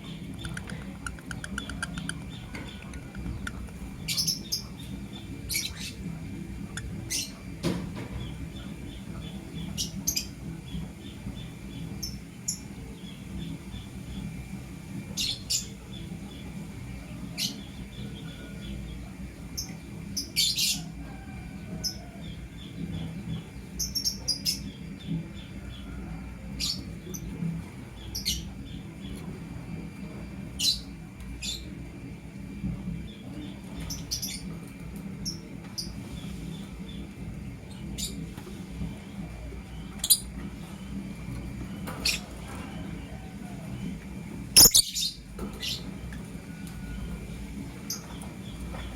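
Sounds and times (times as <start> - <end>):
birds chirping: 0.0 - 14.5, 35.2 - 43.5, 44.4 - 45.9
steady low hum: 0.0 - 48.9.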